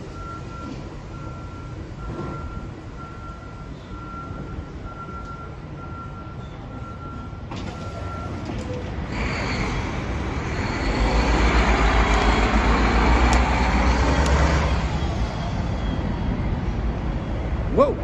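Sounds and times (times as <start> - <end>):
heavy vehicle passing: 9.0 - 17.7.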